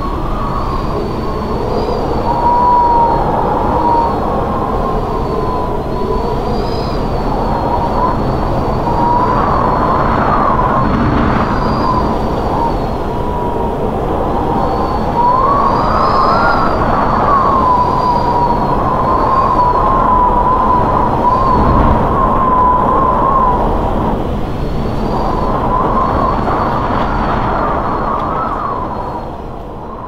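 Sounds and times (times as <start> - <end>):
wavering whistle: 0.0 - 13.7, 14.4 - 24.2
wind rushing over microphone: 0.0 - 30.0.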